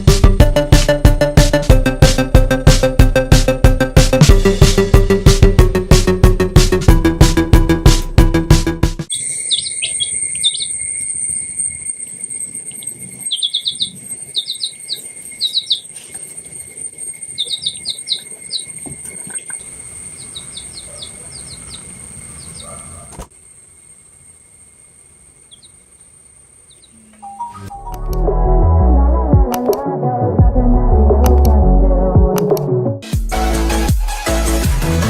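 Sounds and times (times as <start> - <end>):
small birds chirping: 9.1 - 11.4, 12.5 - 23.3, 25.4 - 27.9.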